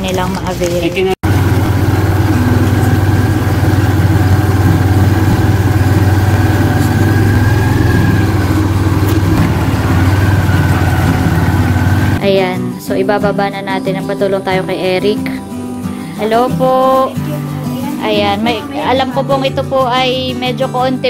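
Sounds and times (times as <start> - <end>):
motorcycle engine humming: 1.2 - 12.2.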